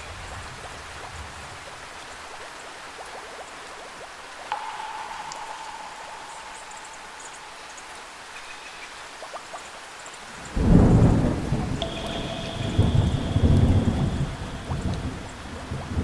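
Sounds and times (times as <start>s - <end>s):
steady rain: 0.0s - 16.0s
faint high tones: 4.5s - 9.2s, 11.8s - 15.7s
thunderclap rumbling: 10.6s - 16.0s.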